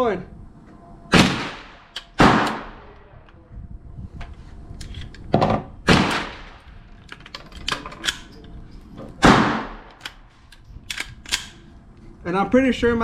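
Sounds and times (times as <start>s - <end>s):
pistol gunshots: 1.1s - 2.8s, 5.9s - 6.6s, 9.2s - 10.0s
metallic clicks: 9.8s - 11.6s.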